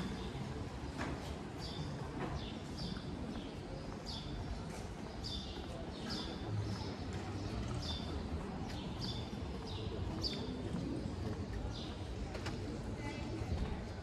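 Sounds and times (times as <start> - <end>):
street background noise: 0.0 - 14.0
footsteps on stone paving: 2.3 - 12.9.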